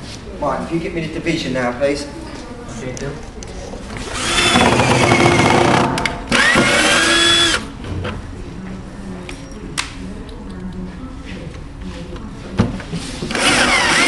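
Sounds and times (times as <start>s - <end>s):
drill-driver driving screws: 4.1s - 7.6s, 13.3s - 14.0s.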